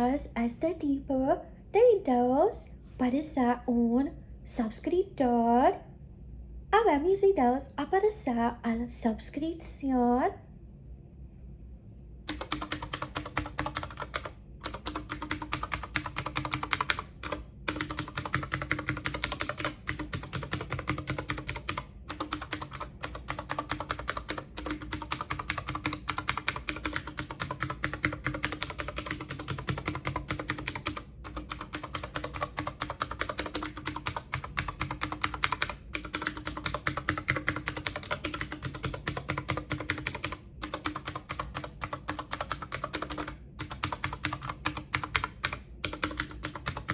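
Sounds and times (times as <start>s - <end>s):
typing on computer keyboard: 12.3s - 46.9s.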